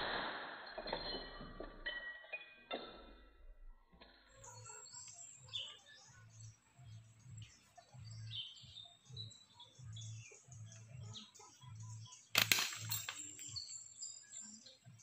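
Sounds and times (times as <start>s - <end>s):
faint bird chirps: 3.7s - 15.0s.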